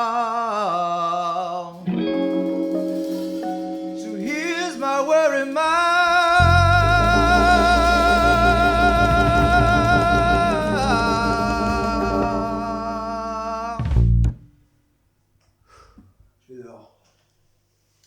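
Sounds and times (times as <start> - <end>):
blues band playing: 1.9 - 5.0, 6.4 - 14.5.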